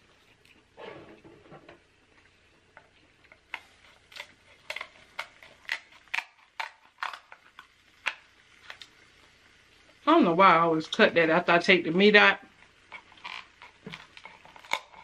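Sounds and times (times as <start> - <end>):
crab shell cracking and snipping: 3.3 - 8.9, 12.9 - 15.0.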